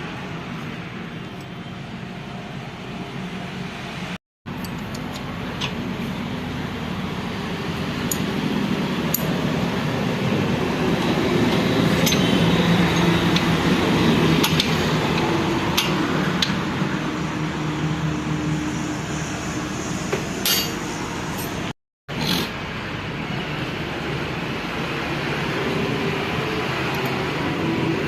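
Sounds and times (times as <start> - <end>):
metal tools clinking: 20.4 - 20.8.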